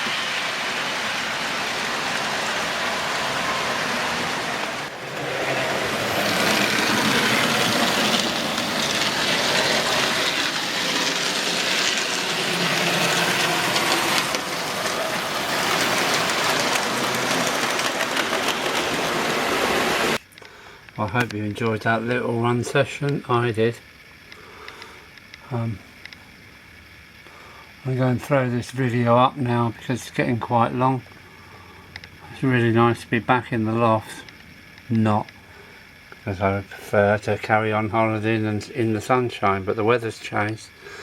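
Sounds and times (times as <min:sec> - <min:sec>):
model train wheels rattling: 0:00.0 - 0:20.5.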